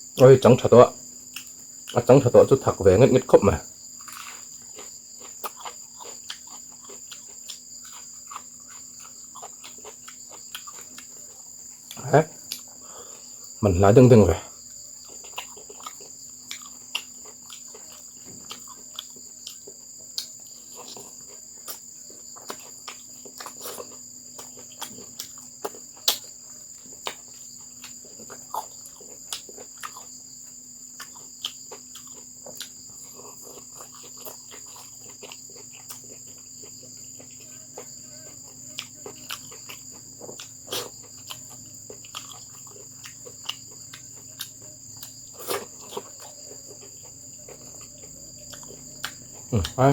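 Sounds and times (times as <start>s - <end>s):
crickets chirring: 0.0s - 49.9s.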